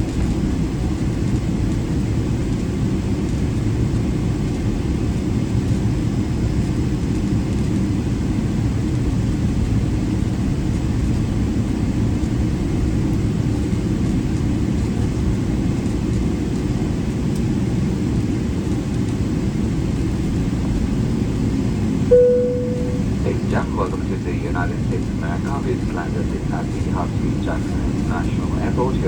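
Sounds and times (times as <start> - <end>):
airplane cabin rumble: 19.8 - 29.0.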